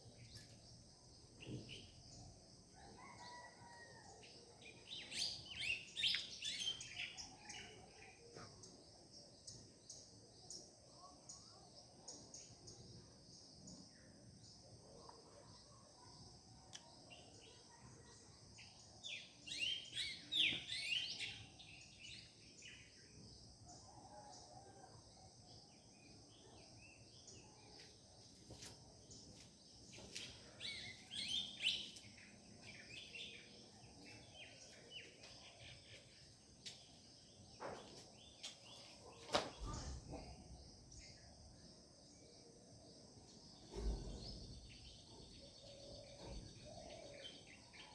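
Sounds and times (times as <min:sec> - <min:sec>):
birds chirping and trilling: 0:43.3 - 0:47.9.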